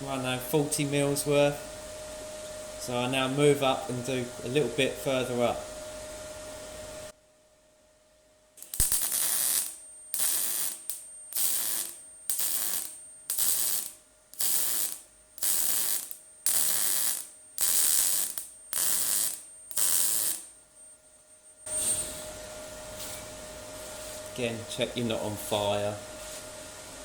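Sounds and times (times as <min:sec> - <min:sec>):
welder arc crackling bursts: 0:08.6 - 0:20.6.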